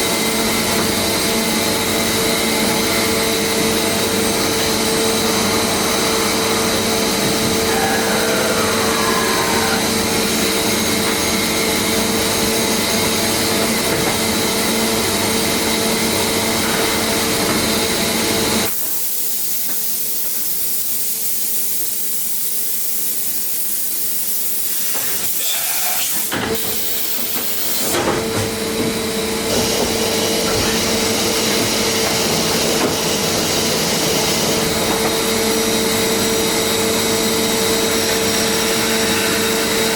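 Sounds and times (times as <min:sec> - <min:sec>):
machine hum: 0:00.0 - 0:18.7.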